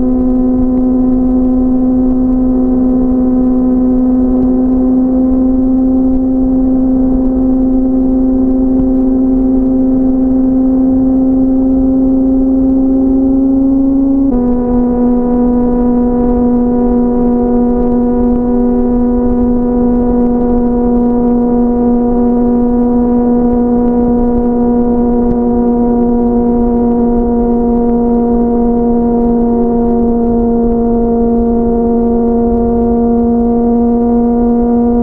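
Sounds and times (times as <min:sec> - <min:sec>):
motorcycle engine at high revs: 0:00.0 - 0:35.0
wind rush: 0:11.0 - 0:28.1.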